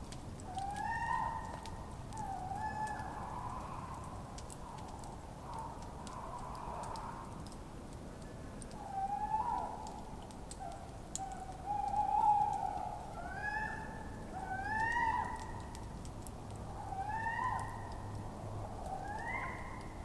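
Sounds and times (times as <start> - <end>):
campfire crackling: 0.0 - 13.3, 14.0 - 16.9
owls hooting and calling: 0.5 - 4.1, 8.7 - 10.0, 10.6 - 15.6, 16.8 - 18.1, 18.8 - 19.9.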